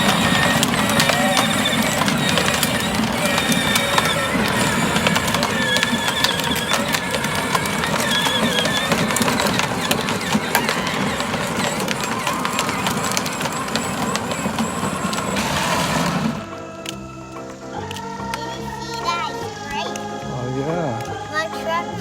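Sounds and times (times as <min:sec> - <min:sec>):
small clicks and rattles: 0:00.0 - 0:16.4
electric toy car whirring: 0:00.0 - 0:22.0
music: 0:00.0 - 0:22.0.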